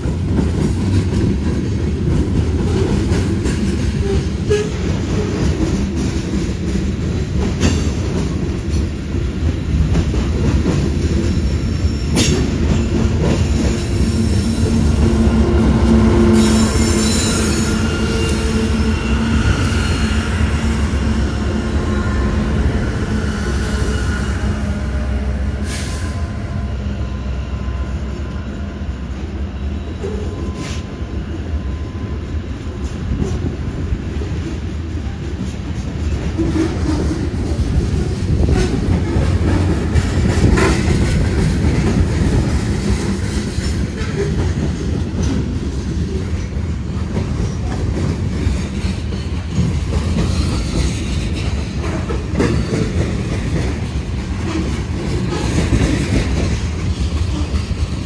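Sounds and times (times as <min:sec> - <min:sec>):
diesel locomotive engine hum: 0:00.0 - 0:58.0
wheels clacking over rails: 0:34.3 - 0:58.0.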